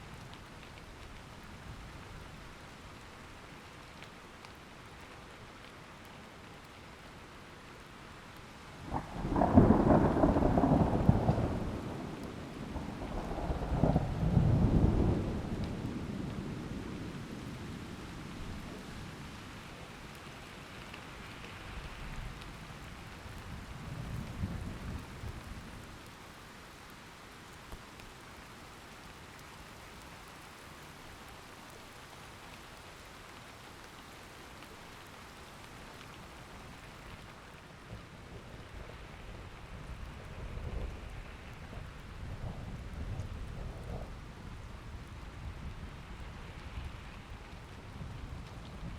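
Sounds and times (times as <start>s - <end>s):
steady rain falling: 0.0s - 48.9s
thunder rumbling: 8.9s - 17.0s, 37.9s - 46.3s.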